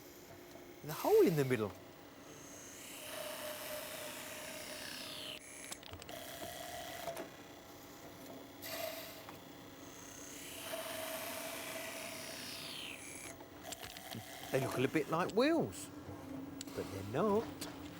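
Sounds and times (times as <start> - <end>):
woodworking machine humming: 0.8 - 7.5, 8.1 - 17.9.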